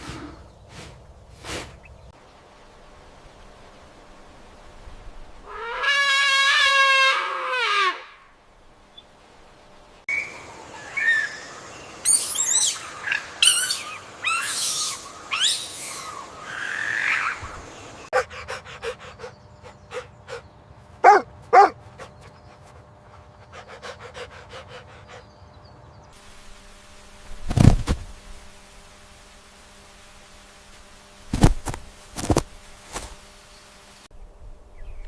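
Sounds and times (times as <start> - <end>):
loud animal call burst: 5.5 - 8.3, 12.1 - 18.0
high sweeping animal chirps: 10.1 - 18.2.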